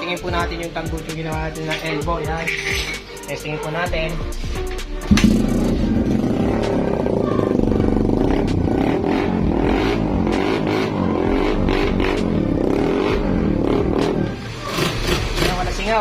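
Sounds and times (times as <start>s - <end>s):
motorcycle engine running loud: 5.1s - 16.0s.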